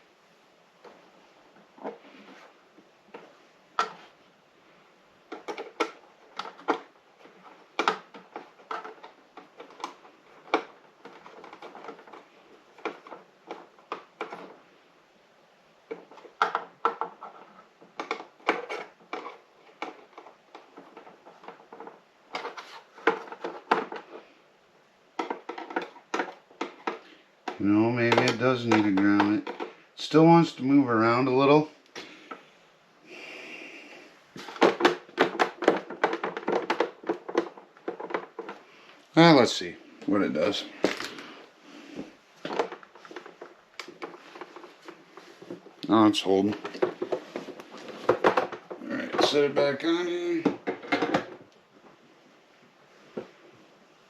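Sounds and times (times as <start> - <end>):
metal and plastic parts clinking: 5.3 - 14.6, 15.9 - 24.2, 25.2 - 29.8, 34.4 - 38.6
parts scraping: 15.9 - 24.4, 33.2 - 51.6.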